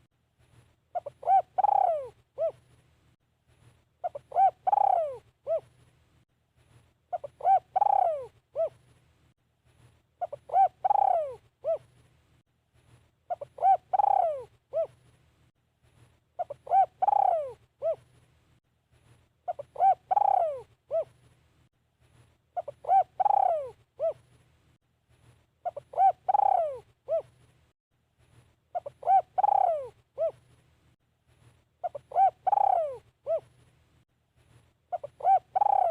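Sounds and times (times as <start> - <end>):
dove cooing: 0.9 - 2.6, 4.0 - 5.7, 7.1 - 8.8, 10.2 - 11.9, 13.3 - 15.0, 16.4 - 18.1, 19.5 - 21.2, 22.6 - 24.2, 25.6 - 27.4, 28.7 - 30.4, 31.8 - 33.5, 34.9 - 35.9.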